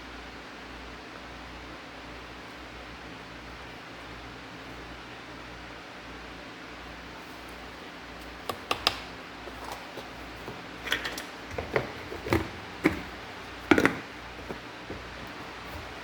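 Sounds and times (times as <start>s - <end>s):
utensils knocking blender jar: 10.5s - 15.9s.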